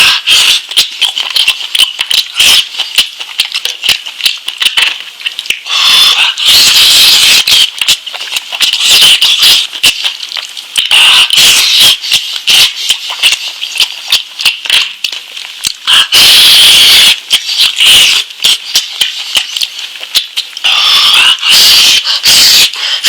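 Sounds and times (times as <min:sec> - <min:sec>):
wet chewing and lip-smacking: 0:00.0 - 0:16.2, 0:16.8 - 0:23.0.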